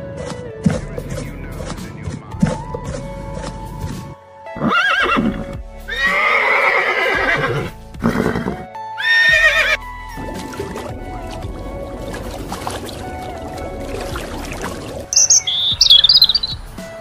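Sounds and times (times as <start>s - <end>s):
background music: 0.0s - 17.0s
horses neighing: 4.6s - 9.8s.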